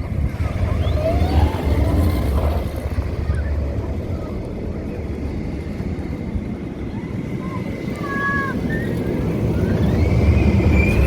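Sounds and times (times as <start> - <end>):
roller coaster train rumbling: 0.0 - 11.0.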